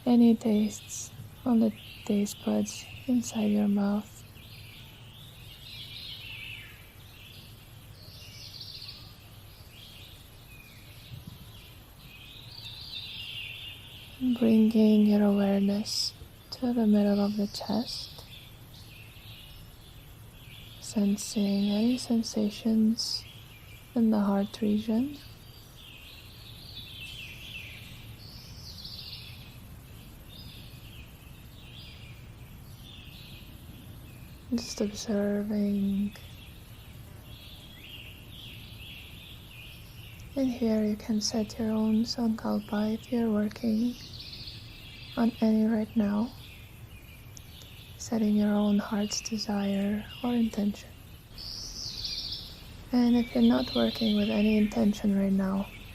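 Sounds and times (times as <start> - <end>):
birds chirping: 0.0 - 55.9
faint low background noise: 0.0 - 55.9
songbird warbling: 0.0 - 55.9.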